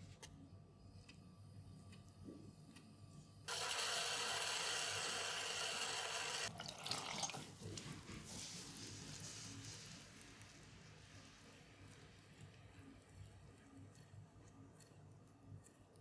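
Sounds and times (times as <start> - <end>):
tap water running: 3.5 - 10.6
faint water splashing: 6.3 - 12.4.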